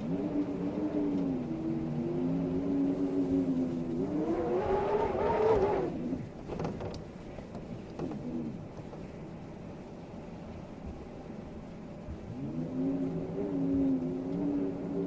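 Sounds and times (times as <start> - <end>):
wind howling: 0.0 - 6.4, 10.9 - 15.0.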